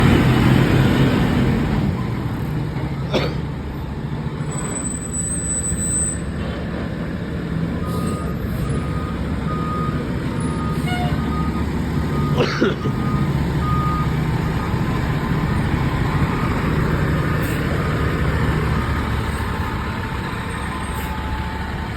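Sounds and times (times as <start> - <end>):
fire engine rumble: 0.0 - 21.9
reversing alarm beeps: 7.8 - 12.4, 13.0 - 15.0.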